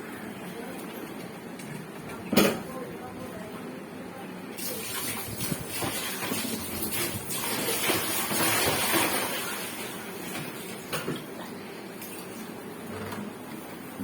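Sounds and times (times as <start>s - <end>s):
water pouring and splashing: 4.6s - 12.5s.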